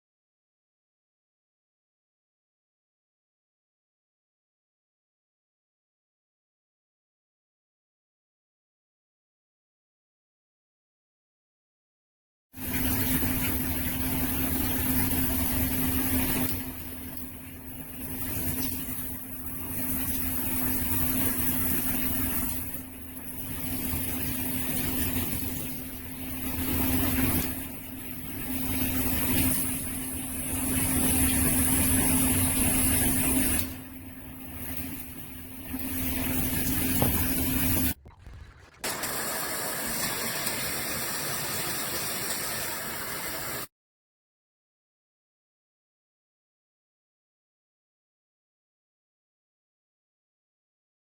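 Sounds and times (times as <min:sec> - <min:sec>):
shower head spraying water: 0:18.0 - 0:33.8, 0:34.5 - 0:43.7
low hum: 0:33.8 - 0:39.4.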